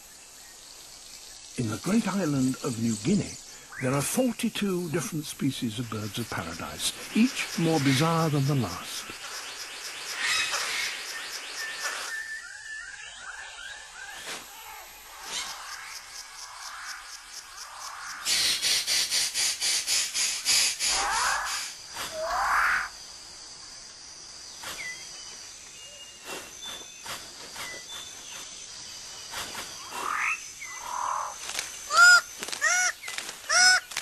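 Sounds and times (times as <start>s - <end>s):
repeated bird calls: 1.5s - 23.0s, 24.5s - 34.0s
pulsing insect buzz: 5.6s - 34.0s
rising whistled bird calls: 10.2s - 15.7s.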